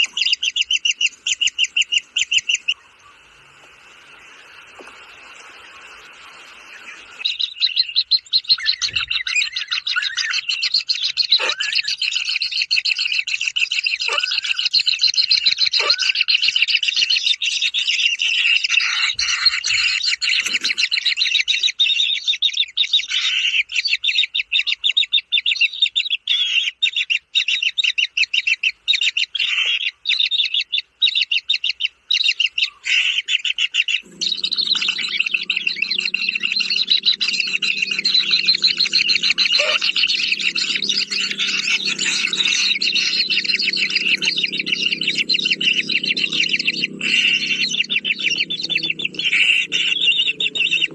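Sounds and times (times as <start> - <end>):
bird chick high chirps: 26.9 - 50.9
low steady hum: 34.0 - 50.9.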